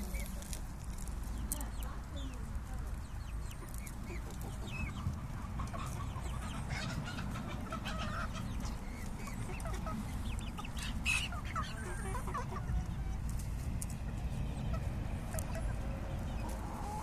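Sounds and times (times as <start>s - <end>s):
guinea fowl calling: 3.6s - 13.2s.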